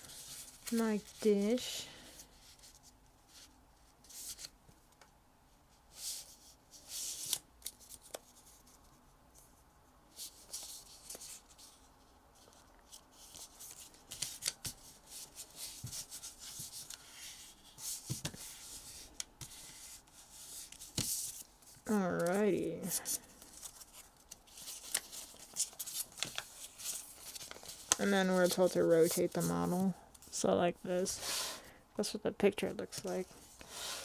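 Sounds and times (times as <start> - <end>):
paper rustling and crinkling: 0.0 - 1.6, 10.2 - 30.3.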